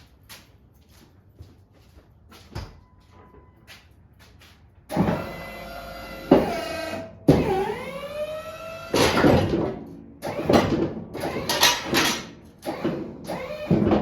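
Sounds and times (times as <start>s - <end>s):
hydraulic pump motor whining: 4.9s - 14.0s.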